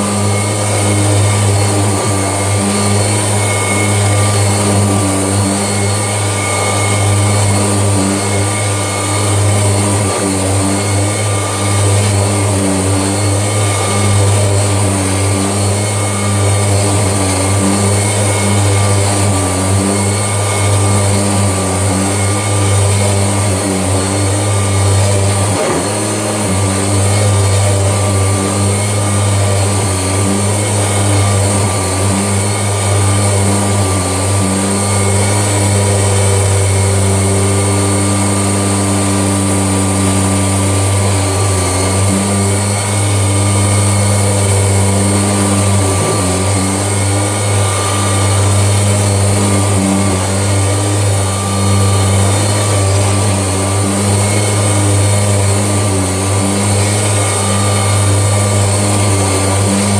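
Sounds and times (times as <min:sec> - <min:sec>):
vacuum cleaner running on carpet: 0:00.0 - 0:59.9.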